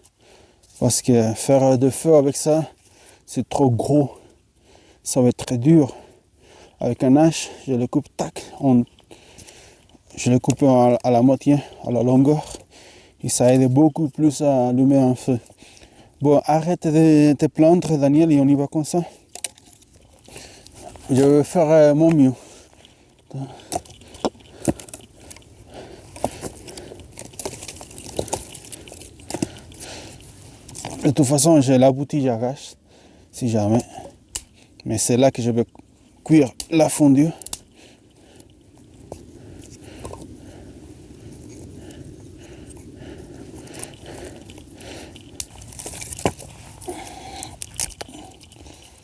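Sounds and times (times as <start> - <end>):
dry wood cracking: 8.2 - 16.4, 17.6 - 32.1, 32.9 - 49.0
twigs snapping: 19.2 - 31.3, 33.6 - 34.9, 35.6 - 49.0.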